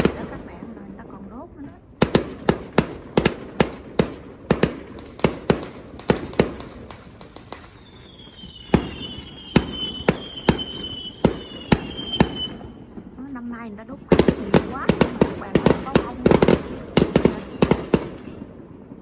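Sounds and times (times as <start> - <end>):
fireworks bangs: 0.0 - 19.0
high falling whistle: 7.7 - 12.7.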